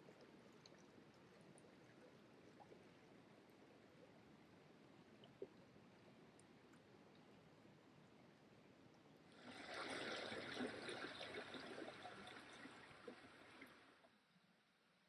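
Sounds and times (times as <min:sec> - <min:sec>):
small stream trickling over stones: 0:09.4 - 0:14.1.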